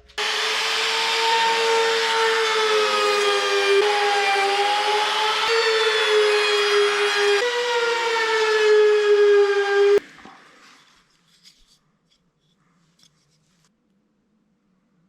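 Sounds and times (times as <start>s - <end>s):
power tool motor whining: 0.2s - 10.0s.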